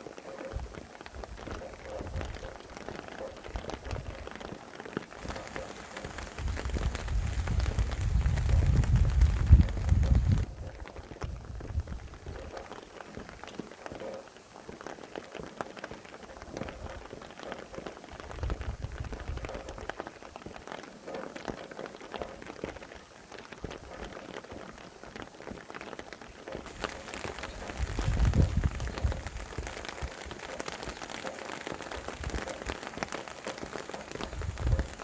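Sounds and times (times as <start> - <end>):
rain drops hitting surfaces: 0.0 - 35.0
wind gust: 5.2 - 10.7, 26.6 - 30.5.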